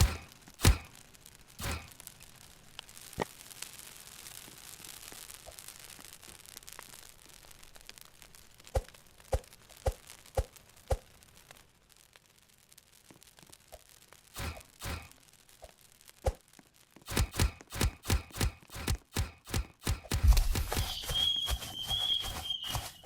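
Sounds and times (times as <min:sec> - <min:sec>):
sharp click: 0:17.1 - 0:20.9.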